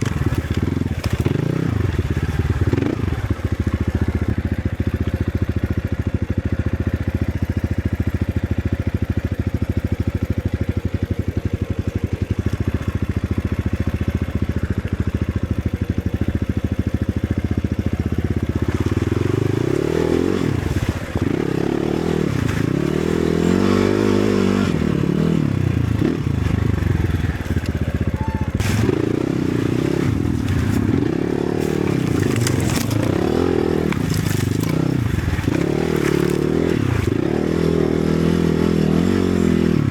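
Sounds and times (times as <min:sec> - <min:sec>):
motorcycle engine revving: 0:00.0 - 0:39.9
sharp knocks and scrapes: 0:30.1 - 0:37.2.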